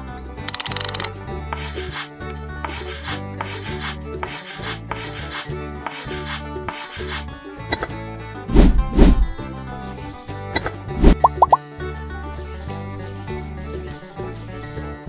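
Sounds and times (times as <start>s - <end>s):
background music: 0.0s - 15.0s
tool rasping on hard surface: 1.5s - 7.9s.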